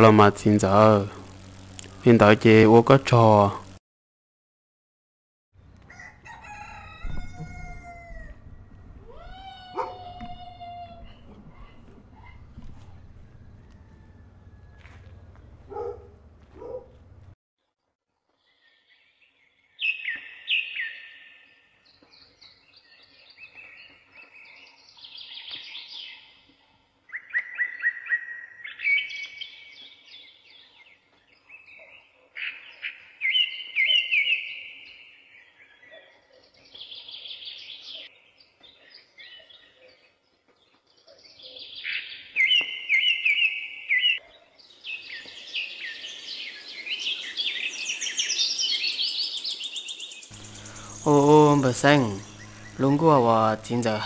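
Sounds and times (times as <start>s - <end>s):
high steady chirring: 0.0s - 3.8s, 50.3s - 54.0s
songbirds chirping: 9.8s - 17.3s, 18.3s - 54.0s.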